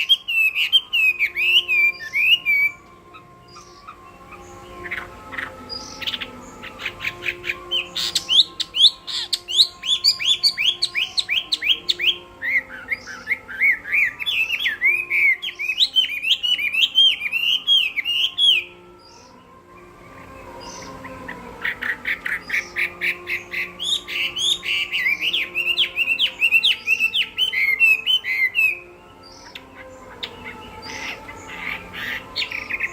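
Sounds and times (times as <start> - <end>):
bird whistled song: 0.0 - 32.9.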